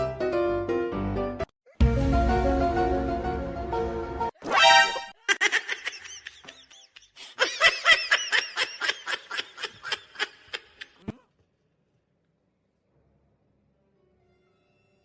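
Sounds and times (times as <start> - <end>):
person laughing: 5.1 - 11.2.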